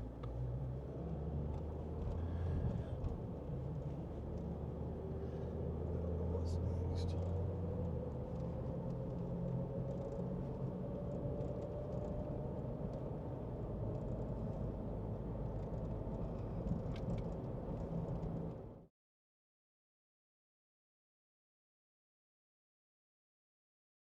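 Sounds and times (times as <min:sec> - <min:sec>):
engine and tyre rumble: 0:00.0 - 0:18.9.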